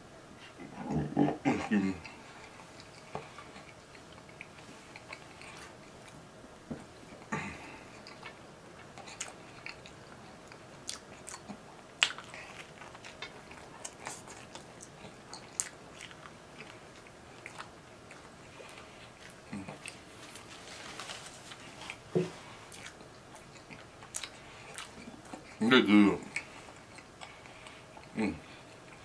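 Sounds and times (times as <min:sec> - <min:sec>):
person chewing sandwich: 0:00.5 - 0:25.6, 0:26.2 - 0:29.0
wet mouth clicks and smacks: 0:10.9 - 0:12.4.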